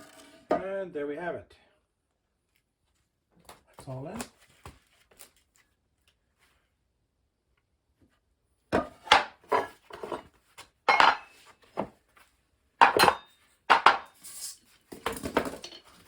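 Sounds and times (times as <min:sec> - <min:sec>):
wooden panels knocking and clattering: 0:08.8 - 0:10.3, 0:10.9 - 0:11.9, 0:12.8 - 0:14.2, 0:14.9 - 0:16.0.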